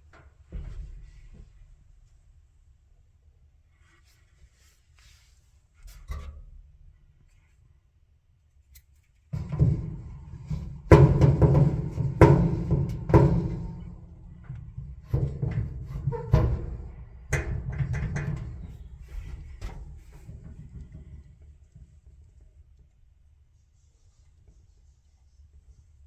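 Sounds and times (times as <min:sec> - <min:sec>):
dryer knocking: 0:09.4 - 0:21.5
clothes dryer rumbling grind: 0:09.4 - 0:21.8.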